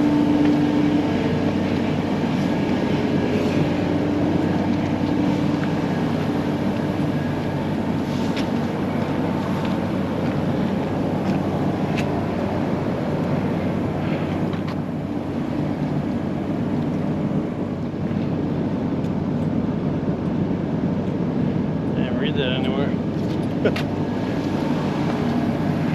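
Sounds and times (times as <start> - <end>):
low machinery drone: 0.0 - 25.9.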